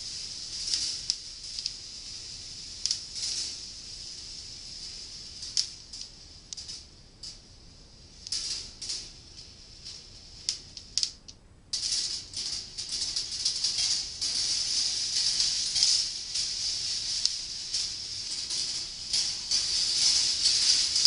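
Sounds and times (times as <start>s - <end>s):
steel balls rolling on wire tracks: 0.0s - 21.0s.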